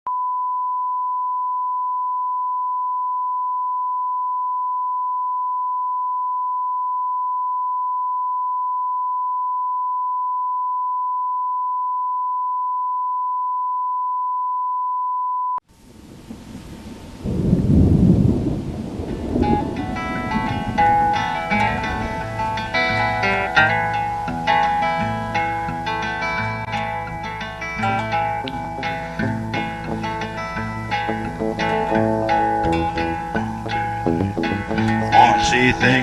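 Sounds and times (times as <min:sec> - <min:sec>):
sine test tone beep: 0:00.1 - 0:15.6
rain: 0:15.7 - 0:23.3
rumble of thunder: 0:16.0 - 0:22.4.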